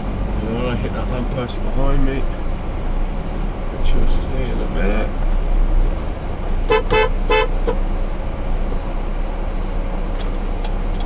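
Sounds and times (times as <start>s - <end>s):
truck engine droning: 0.0s - 11.0s
car horn toots: 6.7s - 7.8s.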